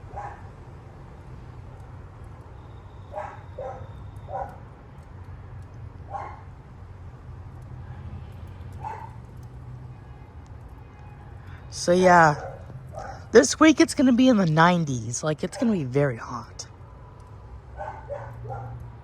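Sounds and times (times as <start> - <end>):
dog barking: 0.1 - 0.5, 3.1 - 4.6, 6.1 - 6.5, 8.8 - 9.2, 12.4 - 13.3, 17.8 - 18.8.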